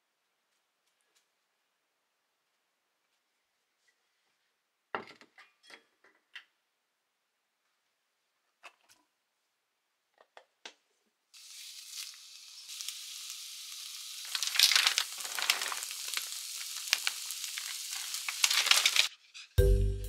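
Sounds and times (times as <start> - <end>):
food sizzling in a frying pan: 11.4 - 19.1.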